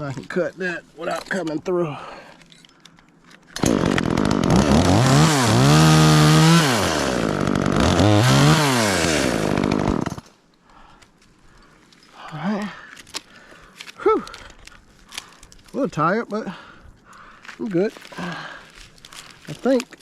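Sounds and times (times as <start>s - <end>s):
chainsaw revving and cutting: 3.6s - 10.3s.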